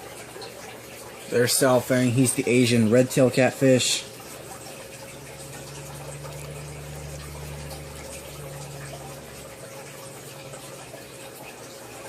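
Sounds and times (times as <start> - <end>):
water trickling: 0.0 - 12.0
low motor hum: 4.0 - 12.0.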